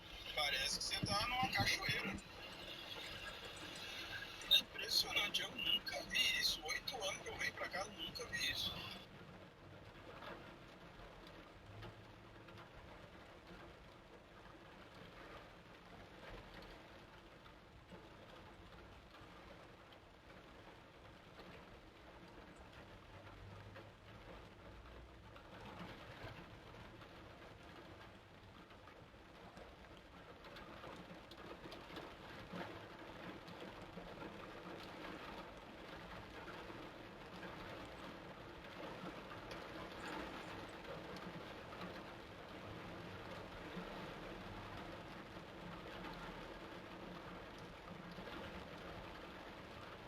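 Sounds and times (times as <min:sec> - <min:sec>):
torrential rain falling: 0:00.0 - 0:50.0.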